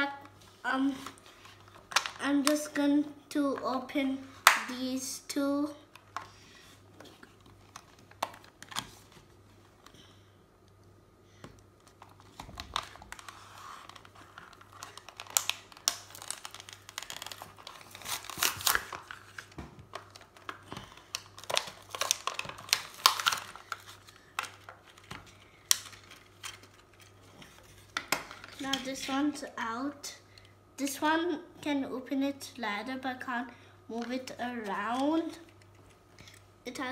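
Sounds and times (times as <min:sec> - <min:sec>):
packaging crinkling and rustling: 0:11.7 - 0:28.9.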